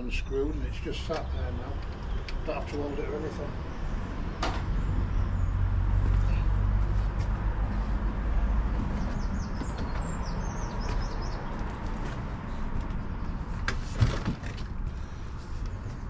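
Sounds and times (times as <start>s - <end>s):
small birds chirping: 8.6s - 13.4s.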